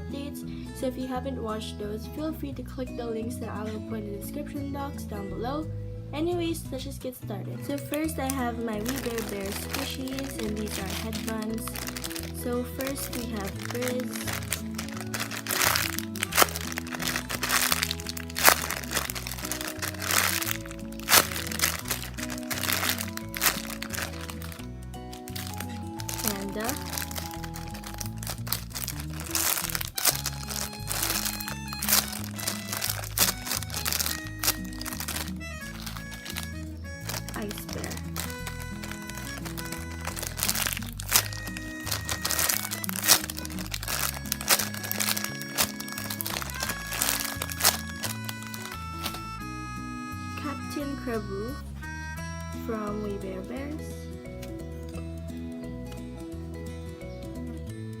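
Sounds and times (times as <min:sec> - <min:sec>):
background music: 0:00.0 - 0:58.0
sharp crackles: 0:07.6 - 0:49.4
squishy toy crinkling and crunching: 0:07.6 - 0:49.5.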